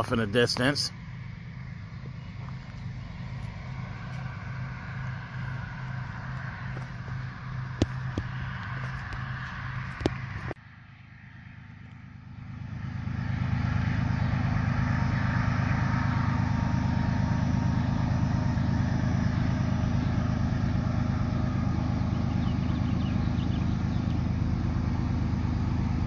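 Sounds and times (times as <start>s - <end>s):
train rumbling: 0.0s - 10.6s
low hum: 0.0s - 26.0s.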